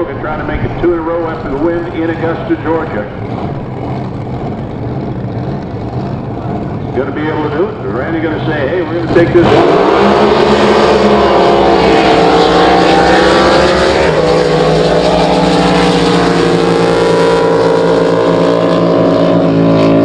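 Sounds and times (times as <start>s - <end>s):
drag boat engines at full throttle: 0.0s - 20.0s.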